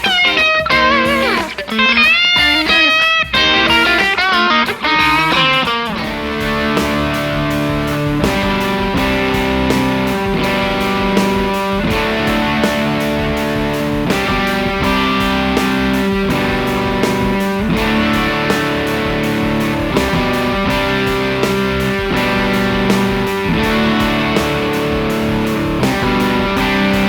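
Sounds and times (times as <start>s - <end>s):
electric guitar chords strummed: 0.0s - 27.0s.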